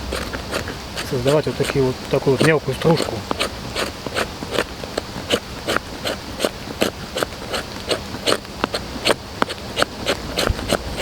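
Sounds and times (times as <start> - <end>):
knife scraping wood shavings: 0.0 - 11.0.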